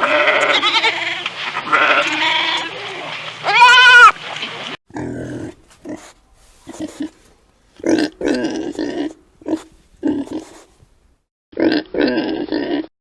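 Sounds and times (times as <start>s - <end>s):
pig grunting: 4.9s - 7.2s, 7.8s - 10.7s, 11.6s - 12.9s.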